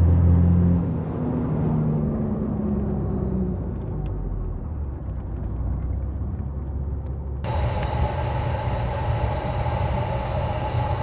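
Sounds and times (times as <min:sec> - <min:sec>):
diesel truck engine rumble: 0:07.5 - 0:11.0
steady machine hum: 0:07.5 - 0:11.0.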